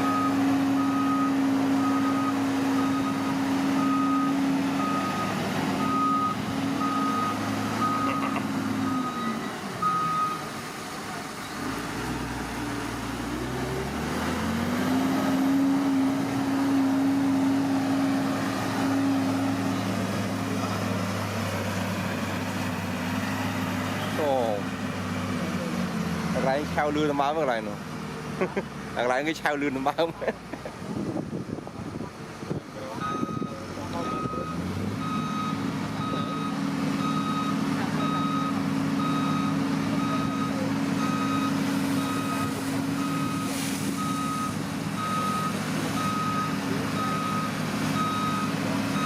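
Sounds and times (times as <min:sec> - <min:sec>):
reversing alarm beeping: 0:00.0 - 0:10.5, 0:33.0 - 0:49.0
diesel engine running: 0:00.0 - 0:49.0.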